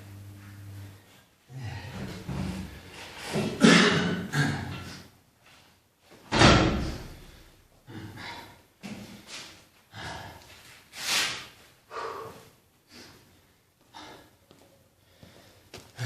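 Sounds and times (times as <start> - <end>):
man breathing hard: 7.2 - 8.7, 9.9 - 10.7, 11.8 - 16.0.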